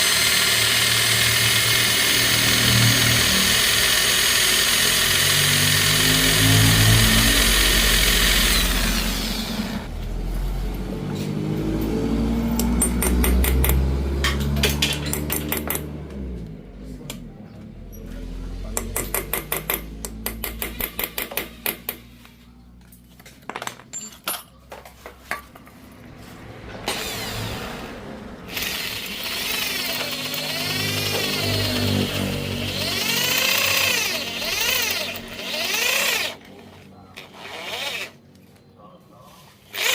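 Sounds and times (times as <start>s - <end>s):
machine humming: 0.0s - 10.7s, 26.8s - 36.5s.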